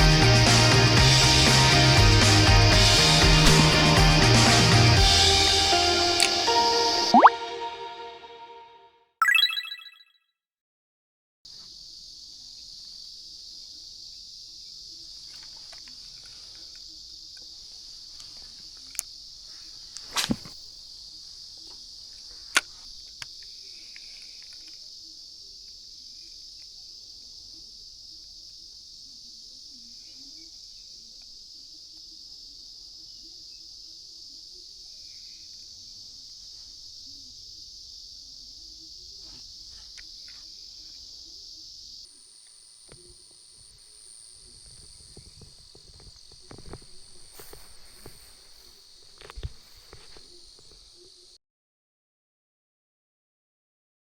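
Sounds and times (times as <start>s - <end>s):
insect chorus buzzing: 11.6s - 51.4s.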